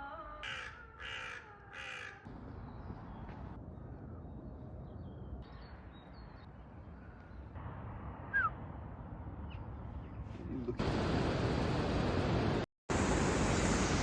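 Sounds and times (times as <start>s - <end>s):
low outdoor rumble: 2.3s - 14.0s
faint bird chirps: 8.3s - 8.5s.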